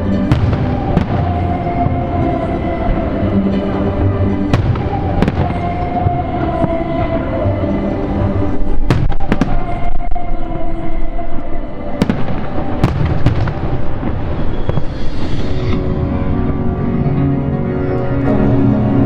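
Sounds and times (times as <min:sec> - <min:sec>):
music playing: 0:00.0 - 0:19.0
fireworks bangs and cracks: 0:00.2 - 0:03.0, 0:04.5 - 0:07.2, 0:08.9 - 0:09.9, 0:12.0 - 0:15.9.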